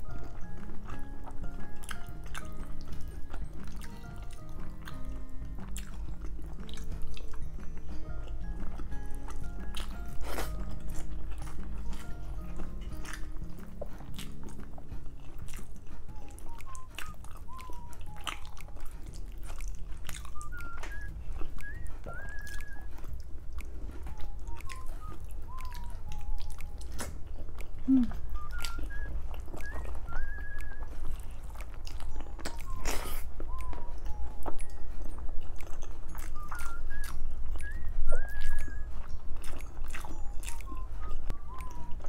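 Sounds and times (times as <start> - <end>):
lip smacks and mouth clicks: 0.0 - 42.0
person chewing food: 0.0 - 42.0
bird whistling chirps: 16.1 - 18.8, 20.2 - 23.0, 24.1 - 27.0, 27.9 - 31.1, 32.1 - 34.8, 36.2 - 39.0, 40.1 - 42.0.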